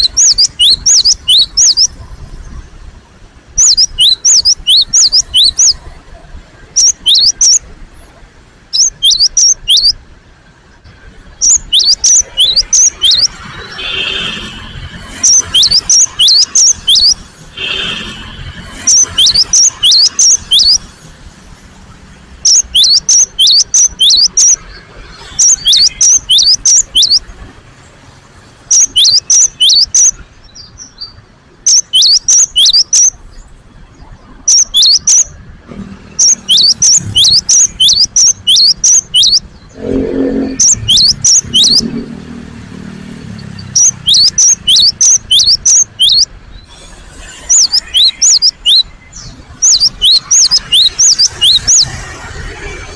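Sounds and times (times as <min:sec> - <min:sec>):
bird calling sharp high notes: 0:00.0 - 0:02.0, 0:03.6 - 0:05.9, 0:08.8 - 0:10.0, 0:11.4 - 0:20.9, 0:22.4 - 0:27.3, 0:28.7 - 0:30.2, 0:31.7 - 0:33.2, 0:34.4 - 0:35.4, 0:36.2 - 0:42.0, 0:43.5 - 0:46.3, 0:47.2 - 0:48.9, 0:49.6 - 0:52.0.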